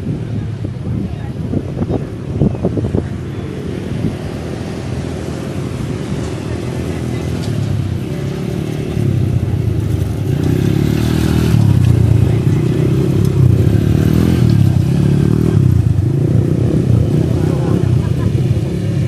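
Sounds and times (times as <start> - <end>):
atv engine revving: 1.5 - 19.0.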